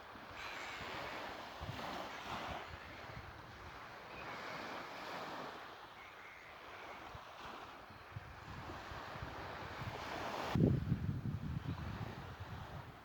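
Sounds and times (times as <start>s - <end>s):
sea waves washing in: 0.0s - 10.7s
wind buffeting microphone: 7.4s - 13.0s.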